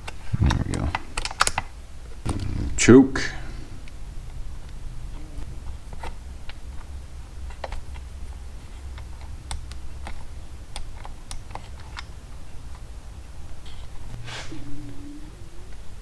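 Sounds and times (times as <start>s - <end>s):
small parts clicking and tapping: 0.0s - 2.5s, 5.7s - 12.9s
low hum: 1.9s - 16.0s.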